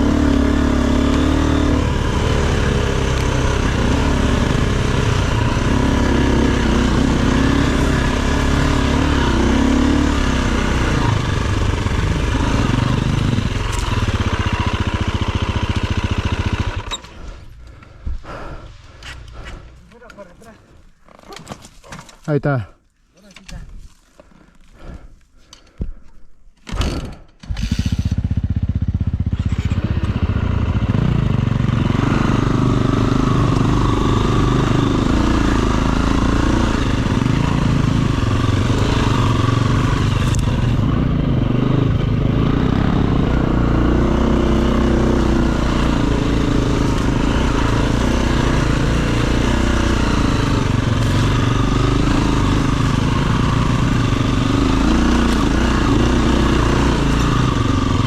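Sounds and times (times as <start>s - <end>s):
dirt bike engine running: 0.0s - 20.6s, 26.8s - 58.0s.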